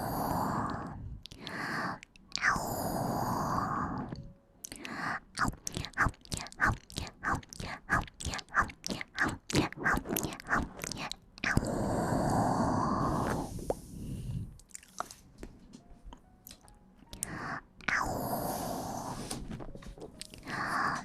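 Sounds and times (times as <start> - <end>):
crisp chewing and biting: 14.6 - 15.2.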